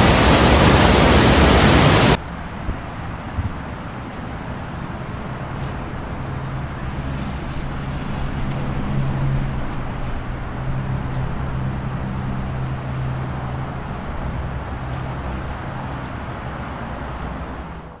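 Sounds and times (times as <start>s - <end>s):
low engine hum: 0.0s - 2.2s
waterfall roaring: 0.0s - 2.2s.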